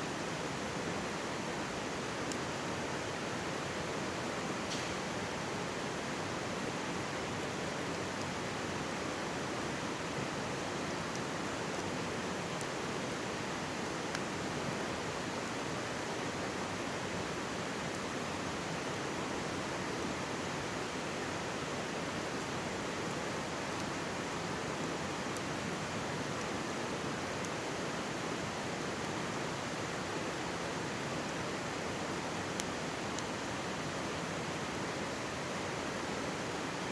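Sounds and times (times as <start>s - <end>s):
mountain stream rushing: 0.0s - 36.9s
campfire crackling: 1.6s - 3.2s, 7.2s - 36.4s.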